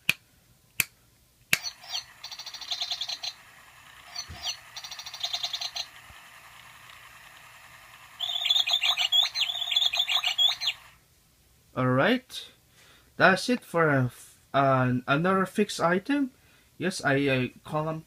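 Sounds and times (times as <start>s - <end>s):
toy bird chirping: 1.5s - 11.0s
small motor and gears whirring: 1.6s - 11.0s.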